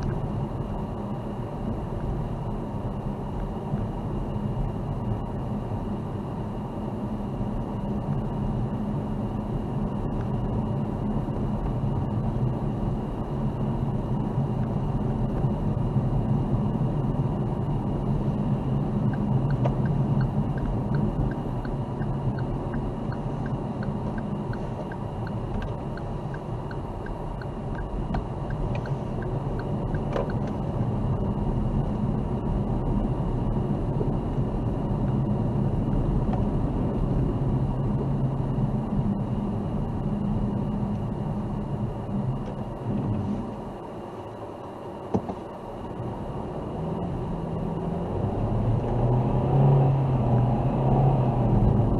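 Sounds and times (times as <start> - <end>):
car engine and tyre rumble: 0.0 - 51.9
faint regular ticking: 19.1 - 30.4.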